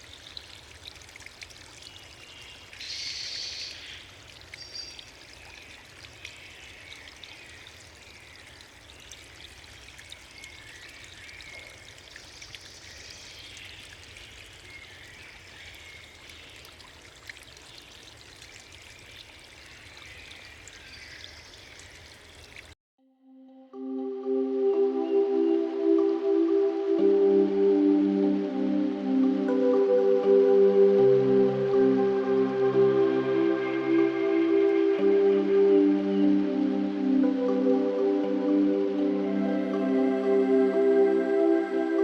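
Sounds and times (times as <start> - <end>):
rushing water: 0.0 - 22.8, 24.6 - 42.0.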